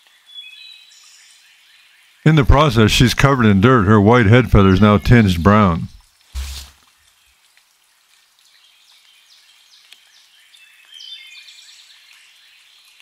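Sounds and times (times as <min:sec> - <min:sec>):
faint outdoor birdsong: 0:00.0 - 0:02.4, 0:03.4 - 0:13.0.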